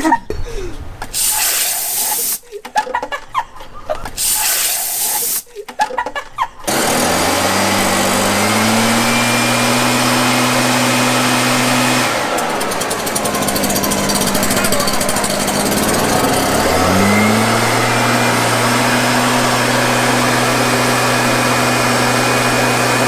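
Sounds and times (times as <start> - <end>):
compressed air hissing: 1.1 - 2.5, 4.1 - 5.6
whirring hum: 5.7 - 23.0
fast rattling pulse: 11.5 - 20.3.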